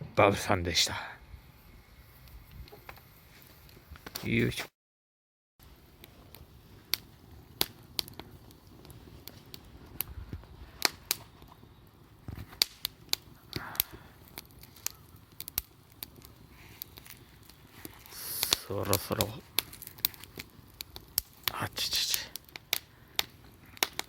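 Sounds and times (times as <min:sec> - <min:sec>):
bonfire crackling: 0:00.2 - 0:04.6, 0:05.6 - 0:24.0
sharp pops of burning firewood: 0:02.2 - 0:04.6, 0:05.7 - 0:24.0.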